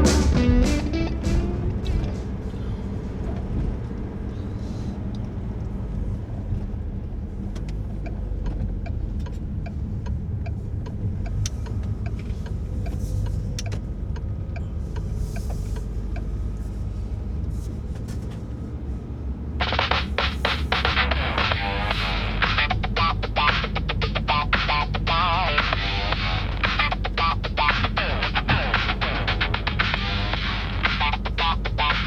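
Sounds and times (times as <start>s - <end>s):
music: 0.0s - 2.4s, 19.6s - 32.0s
car engine and tyre rumble: 0.0s - 32.0s
faint ticking: 19.6s - 32.0s.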